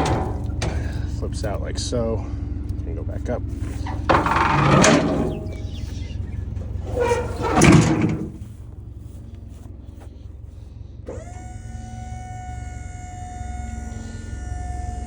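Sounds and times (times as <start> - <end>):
loud metal clatter: 0.0 - 1.0, 3.7 - 6.0, 6.6 - 8.5
hydraulic pump motor whine: 0.0 - 2.8, 3.4 - 8.7, 11.0 - 15.0
low engine idle hum: 0.0 - 15.0.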